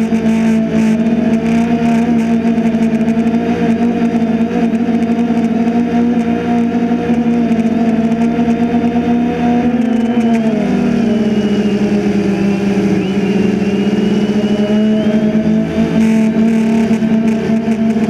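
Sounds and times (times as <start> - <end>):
drone motors humming: 0.0 - 18.0.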